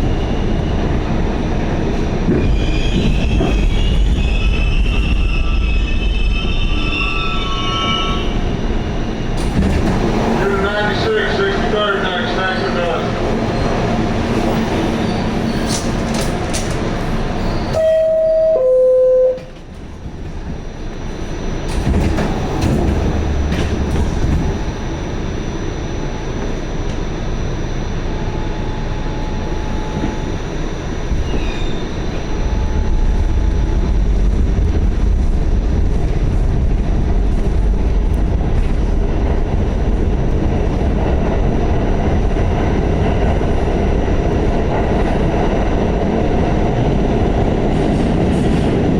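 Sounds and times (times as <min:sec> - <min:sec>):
subway train rumble: 0:00.0 - 0:48.9
two-tone door chime: 0:17.7 - 0:19.5.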